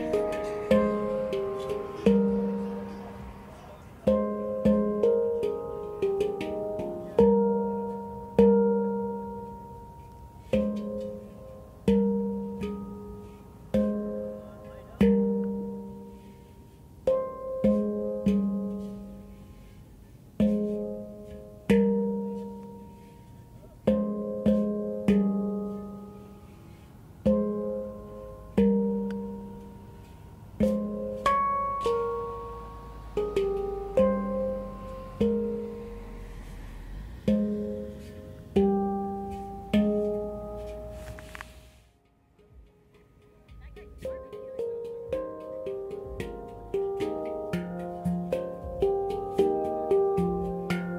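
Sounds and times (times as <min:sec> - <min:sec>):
handpan notes ringing: 0:00.0 - 0:50.9.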